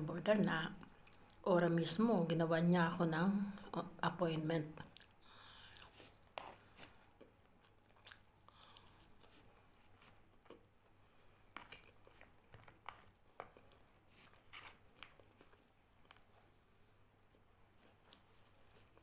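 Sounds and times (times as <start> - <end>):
person chewing: 4.9 - 16.5.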